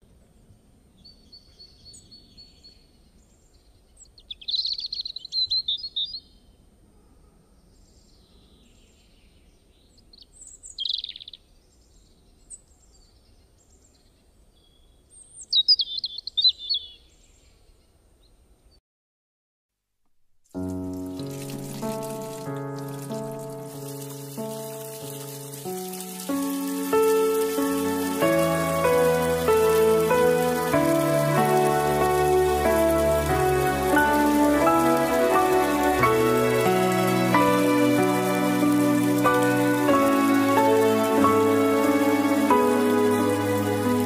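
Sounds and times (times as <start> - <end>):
faint low background noise: 0.0 - 18.8.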